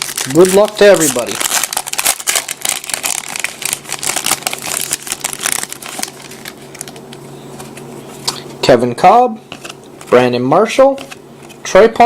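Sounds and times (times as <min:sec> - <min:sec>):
wrapper crinkling: 0:00.0 - 0:08.4.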